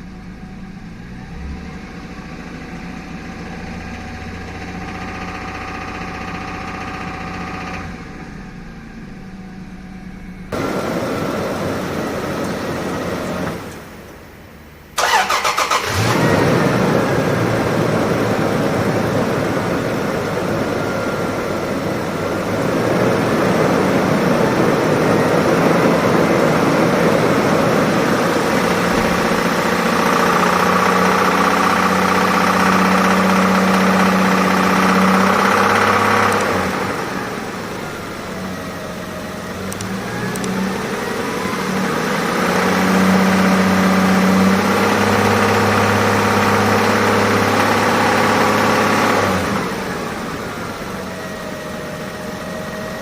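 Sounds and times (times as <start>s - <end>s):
car engine running: 0.0s - 53.0s
starter motor cranking: 15.0s - 16.3s.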